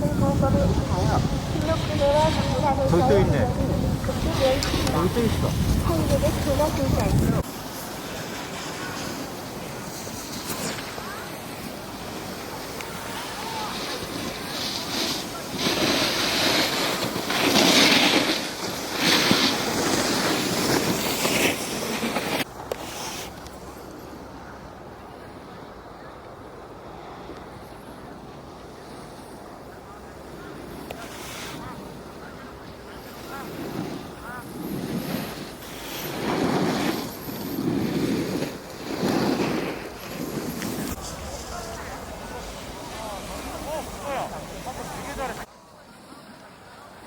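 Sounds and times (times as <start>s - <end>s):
wind on microphone: 0.0s - 7.7s, 30.5s - 45.5s
skis scraping on snow: 0.0s - 24.0s, 30.3s - 45.5s.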